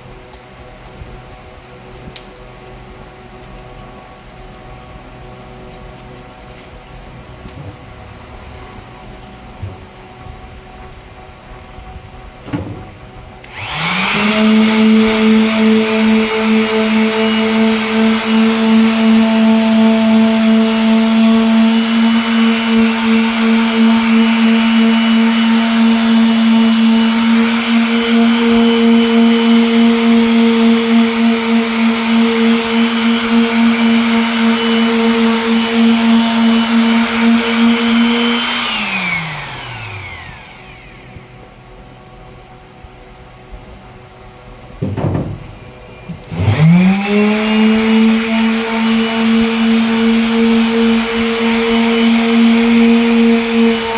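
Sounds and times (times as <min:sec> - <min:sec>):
electric sander running: 0:13.3 - 0:42.5, 0:46.2 - 0:53.9.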